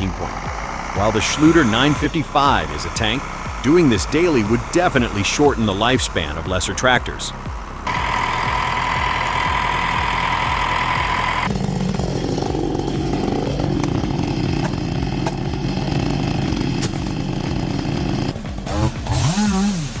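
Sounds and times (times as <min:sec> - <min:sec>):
chainsaw running: 0:00.0 - 0:20.0.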